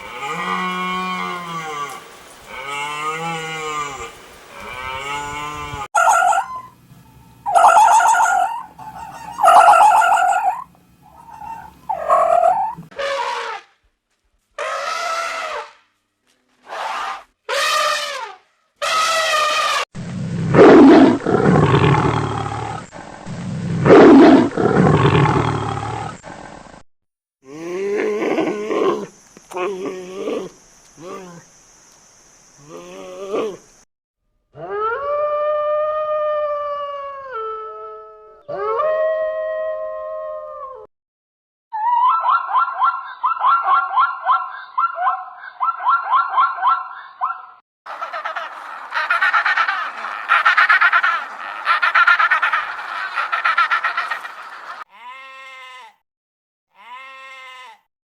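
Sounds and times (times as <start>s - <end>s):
short pitched animal calls: 3.2s - 13.6s
animal squealing: 5.9s - 13.3s, 47.9s - 54.8s
large animal roaring: 20.2s - 26.6s.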